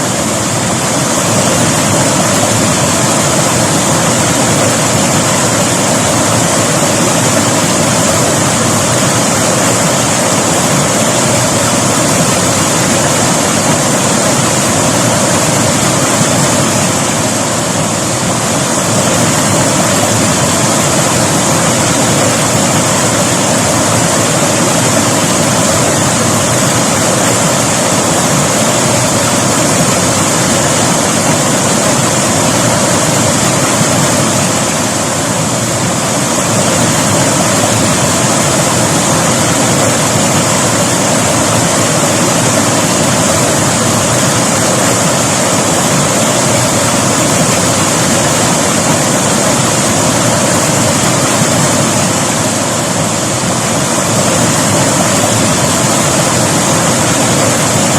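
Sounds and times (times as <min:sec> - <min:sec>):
river water rushing over rocks: 0:00.0 - 0:57.9.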